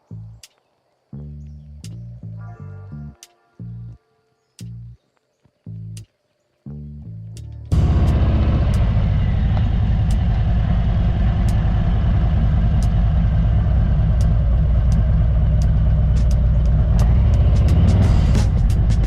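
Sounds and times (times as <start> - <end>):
motorcycle engine running: 7.7 - 19.0.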